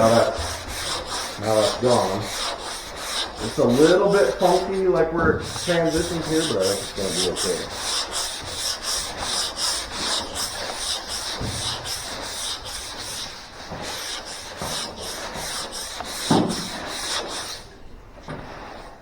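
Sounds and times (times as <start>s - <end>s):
sandpaper rasping on filler: 0.0s - 17.8s, 18.4s - 19.0s
dull knock: 11.2s - 12.2s, 16.2s - 16.7s.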